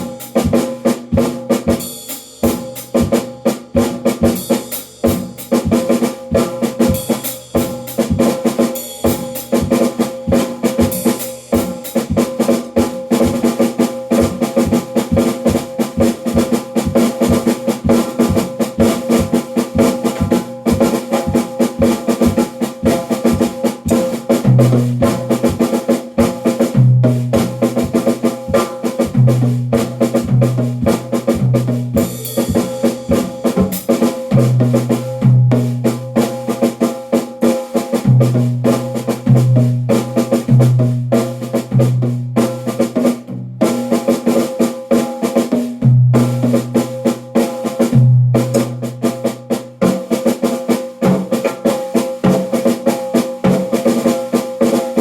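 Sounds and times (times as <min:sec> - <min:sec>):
drum kit playing fast: 0:00.0 - 0:55.0.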